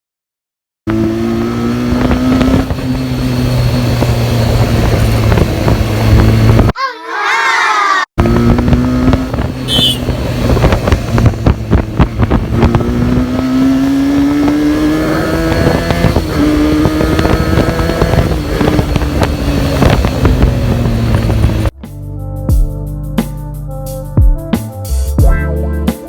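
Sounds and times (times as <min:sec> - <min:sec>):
motorcycle engine running: 0:00.9 - 0:06.7, 0:08.2 - 0:23.5
wind buffeting microphone: 0:03.7 - 0:06.7, 0:08.2 - 0:21.7.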